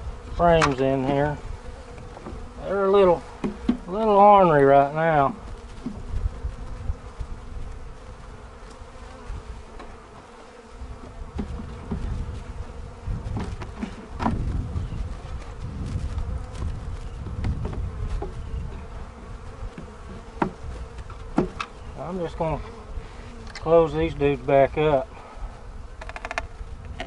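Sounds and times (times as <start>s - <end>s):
bees buzzing: 0.0s - 27.0s.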